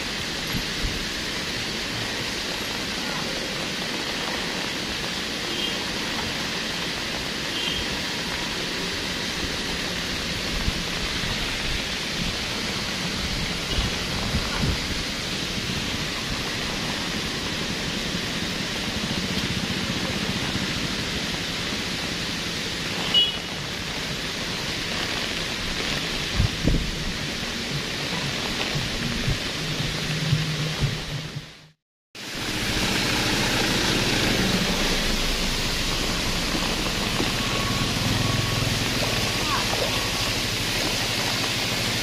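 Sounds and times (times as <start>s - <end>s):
rain and running water: 0.0s - 42.0s
vehicle engines creeping past: 32.4s - 42.0s.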